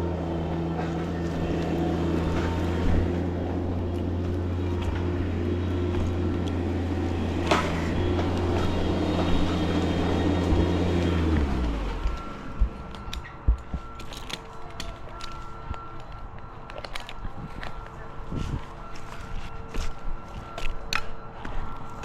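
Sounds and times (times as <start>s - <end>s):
engine winding down: 0.0s - 14.1s
large engine idling: 0.0s - 19.8s.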